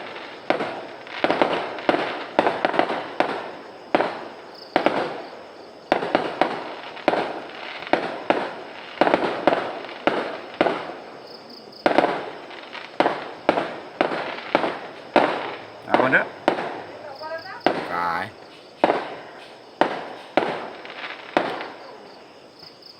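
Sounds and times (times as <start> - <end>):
fireworks exploding with sharp bangs: 0.0 - 5.2.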